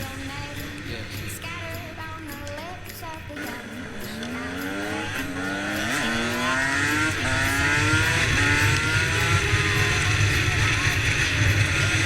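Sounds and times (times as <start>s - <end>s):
vehicle engine accelerating: 3.4s - 12.0s.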